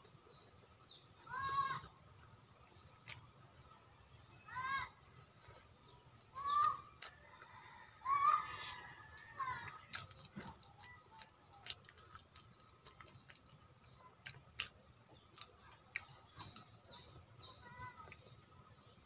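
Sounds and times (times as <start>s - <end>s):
faint chewing: 2.2s - 3.8s, 4.6s - 19.0s
faint bird chirps: 3.8s - 19.0s.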